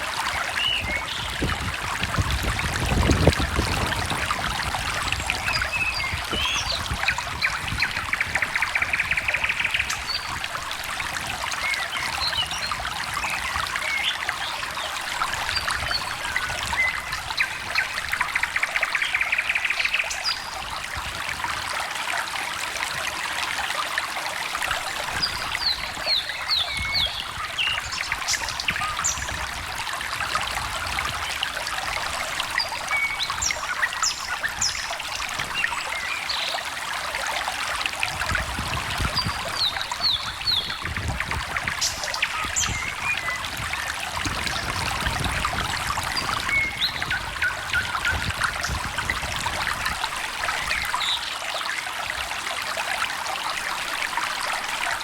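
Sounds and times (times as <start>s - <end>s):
stream trickling and babbling: 0.0s - 55.0s
birds singing: 0.3s - 1.6s, 4.9s - 10.5s, 11.5s - 20.8s, 25.1s - 29.6s, 32.4s - 36.7s, 38.6s - 49.2s, 50.5s - 51.8s.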